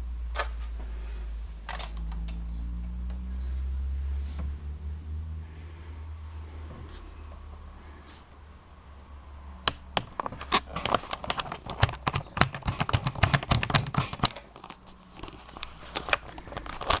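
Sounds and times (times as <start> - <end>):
sharp clicks: 9.6 - 14.8
crinkly rustles: 10.2 - 17.0.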